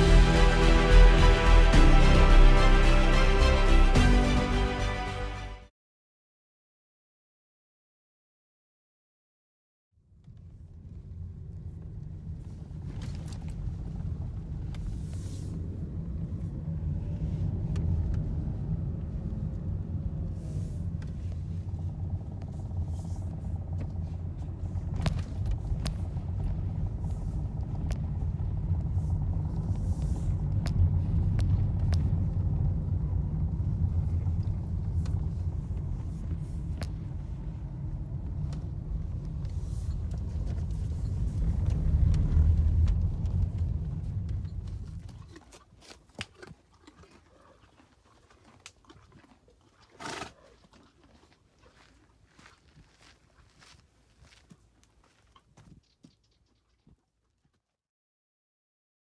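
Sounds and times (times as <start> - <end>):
low rumble: 0.0 - 5.6, 10.2 - 45.6.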